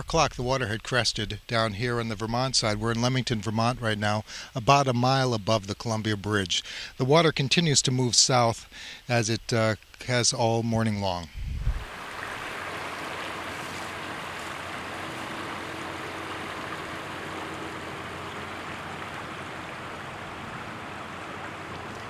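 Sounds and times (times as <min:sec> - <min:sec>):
river water rushing: 0:11.8 - 0:22.0.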